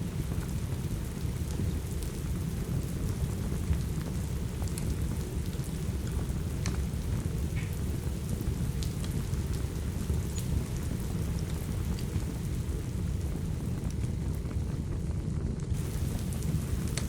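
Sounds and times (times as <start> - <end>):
steady rain: 0.0 - 17.0
wood fire crackling and popping: 0.0 - 17.0.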